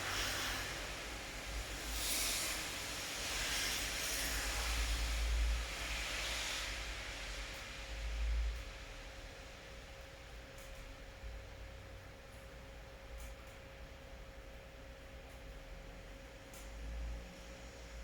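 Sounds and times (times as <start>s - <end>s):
steady rain hiss: 0.0s - 10.3s.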